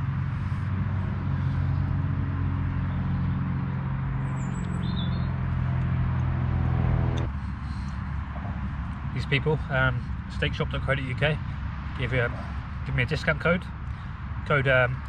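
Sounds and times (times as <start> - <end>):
traffic engine drone: 0.0 - 15.0
bird chirping: 4.2 - 5.4.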